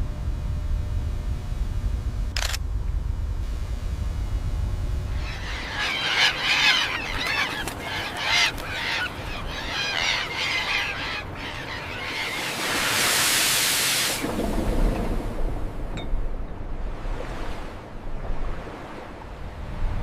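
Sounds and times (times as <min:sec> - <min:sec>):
birds calling: 0:05.1 - 0:13.1
rushing hiss: 0:12.4 - 0:14.2.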